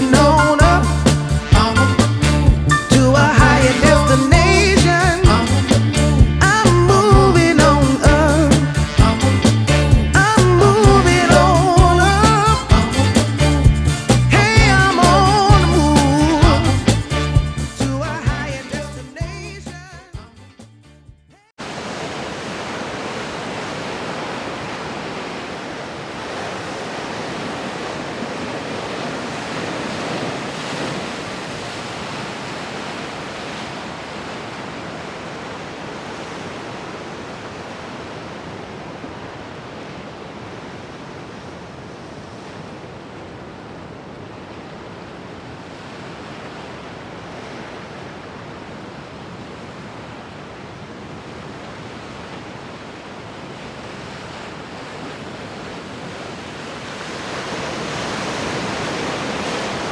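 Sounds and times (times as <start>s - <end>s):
ocean surf: 0.0s - 19.2s, 21.6s - 59.9s
wind: 21.6s - 59.9s.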